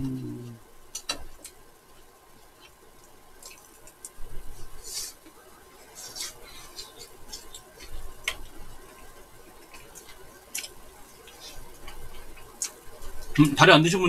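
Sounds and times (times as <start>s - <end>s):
chewing with wet mouth clicks: 2.5s - 4.2s, 9.6s - 13.4s.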